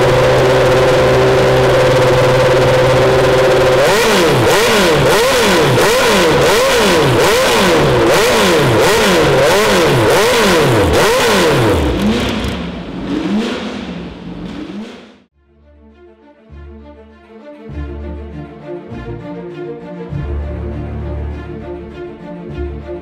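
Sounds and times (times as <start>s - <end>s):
racing engine revving: 0.0s - 15.3s.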